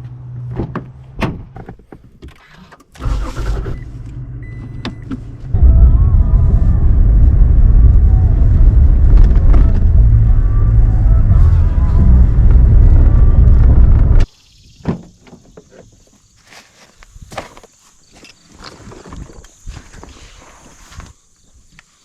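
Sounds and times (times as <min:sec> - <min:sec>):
truck engine starting and rumbling: 0:02.4 - 0:14.3.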